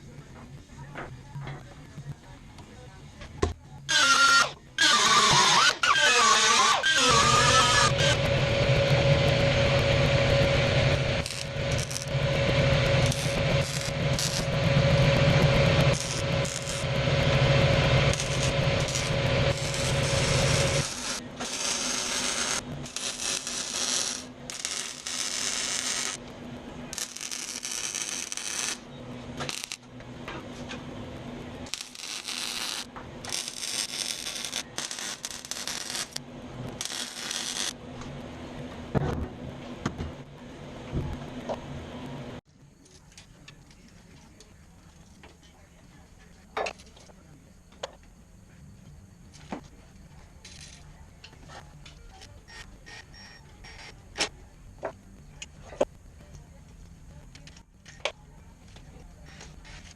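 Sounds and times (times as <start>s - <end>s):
machine humming: 6.6s - 42.4s.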